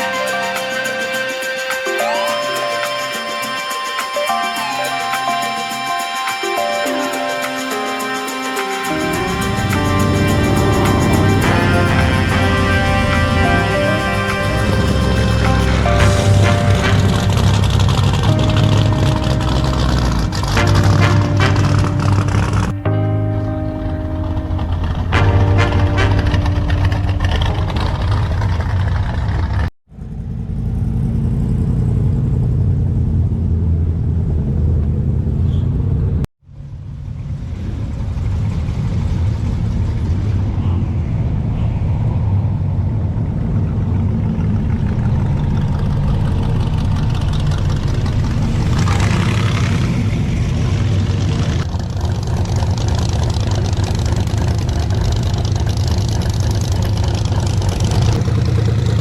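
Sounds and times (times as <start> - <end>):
car engine idling: 14.4 - 30.6, 43.3 - 59.0.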